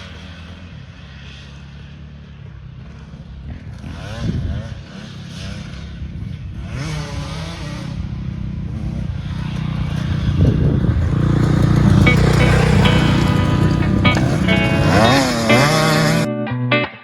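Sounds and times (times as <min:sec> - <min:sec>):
dirt bike engine revving: 0:06.6 - 0:16.3.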